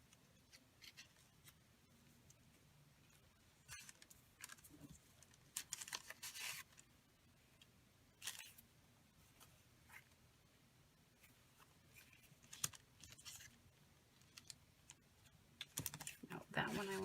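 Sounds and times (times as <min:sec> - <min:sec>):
paper rustling: 0:03.1 - 0:06.9, 0:11.2 - 0:13.6, 0:15.7 - 0:17.0.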